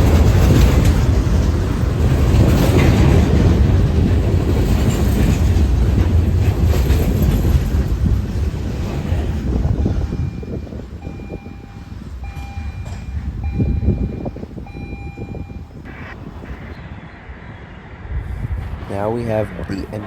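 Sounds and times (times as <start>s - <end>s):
wheels clacking over rail joints: 0.0s - 14.6s
freight train rumbling past: 0.0s - 20.0s.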